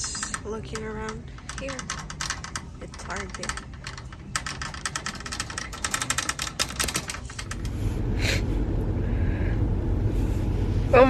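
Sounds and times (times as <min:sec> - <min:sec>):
rapid clicking and rattling: 0:00.0 - 0:08.0
steady low rumble: 0:00.0 - 0:11.0.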